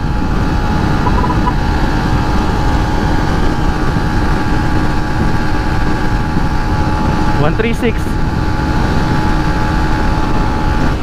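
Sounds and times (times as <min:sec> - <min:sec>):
motorcycle engine at high speed: 0:00.0 - 0:11.0
wind rush on microphone: 0:00.0 - 0:11.0.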